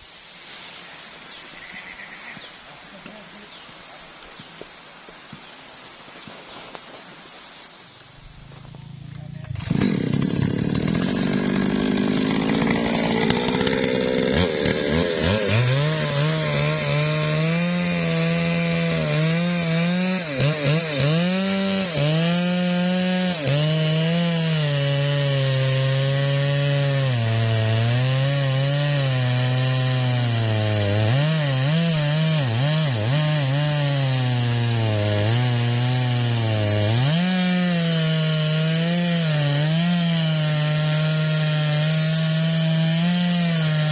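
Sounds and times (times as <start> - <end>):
chainsaw cutting wood: 8.6 - 43.9.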